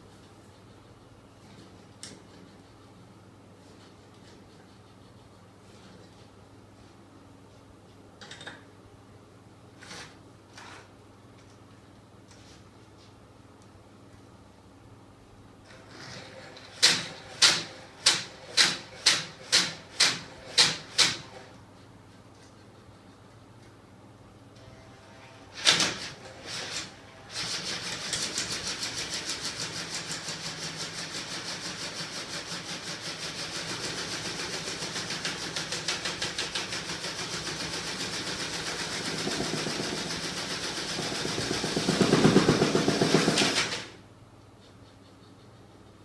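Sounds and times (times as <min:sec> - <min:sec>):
small engine pulsing rattle: 0:27.4 - 0:44.0.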